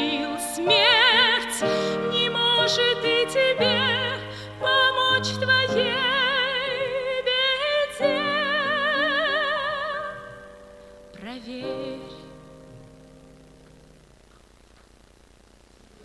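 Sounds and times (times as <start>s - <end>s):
person singing: 0.0s - 12.6s.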